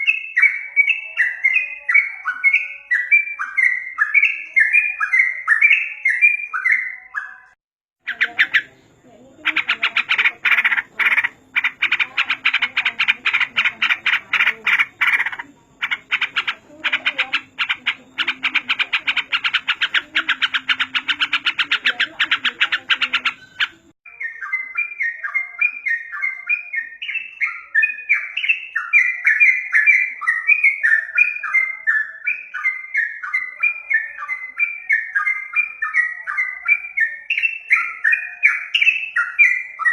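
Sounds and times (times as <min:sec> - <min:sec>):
bird chirping phrases: 0:00.0 - 0:39.9
bulbul chattering: 0:08.0 - 0:39.9.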